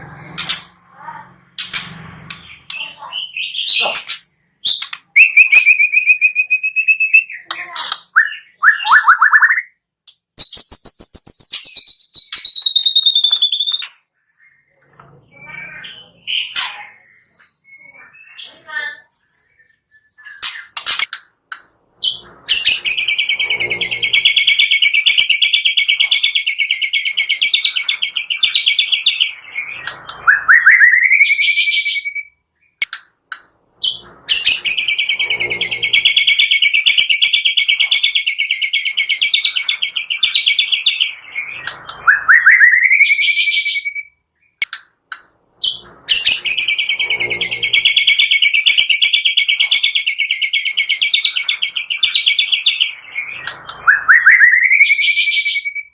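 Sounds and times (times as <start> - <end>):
recorded bird trill: 0.3 - 55.9
rising bird whistle: 8.2 - 9.8, 22.5 - 32.4, 34.3 - 44.2, 46.1 - 55.9.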